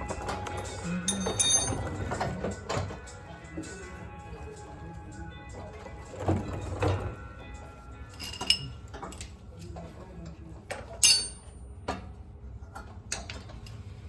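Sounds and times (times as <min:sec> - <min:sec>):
metal tools clinking: 0:00.6 - 0:02.0, 0:08.1 - 0:09.2, 0:11.0 - 0:11.6.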